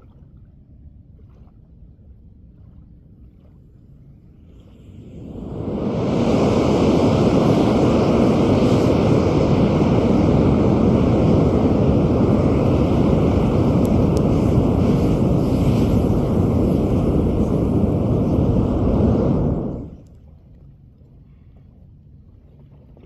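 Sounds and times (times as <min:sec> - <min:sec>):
roar of burning propellant: 0:04.7 - 0:20.1.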